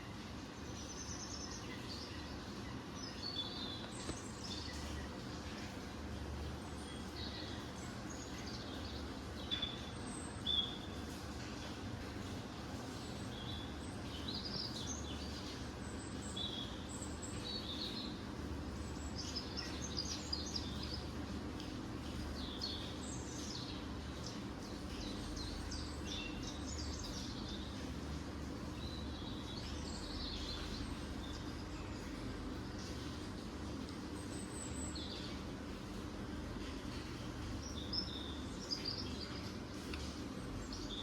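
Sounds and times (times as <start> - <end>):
low background hum: 0.0 - 41.0
small birds chirping: 0.0 - 41.0.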